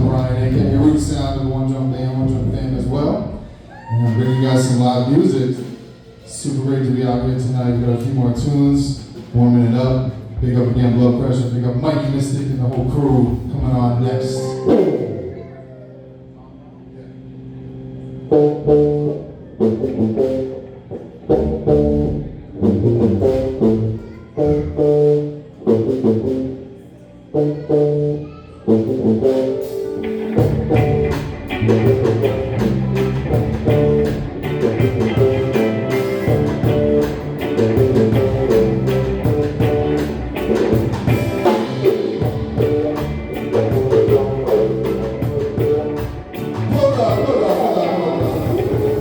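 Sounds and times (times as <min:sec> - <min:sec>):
live band playing: 0:00.0 - 0:11.3, 0:17.4 - 0:49.0
punchy band chord hits: 0:29.4 - 0:49.0.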